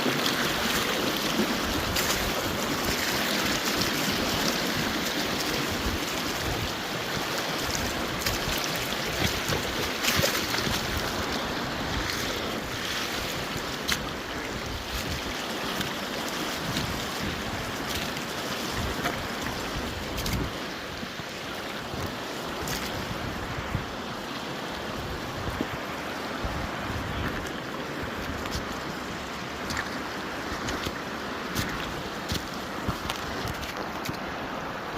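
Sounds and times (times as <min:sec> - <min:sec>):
river water rushing over rocks: 0:00.0 - 0:34.9
wind buffeting microphone: 0:16.6 - 0:18.0, 0:18.7 - 0:21.2, 0:21.9 - 0:24.0, 0:25.0 - 0:29.0.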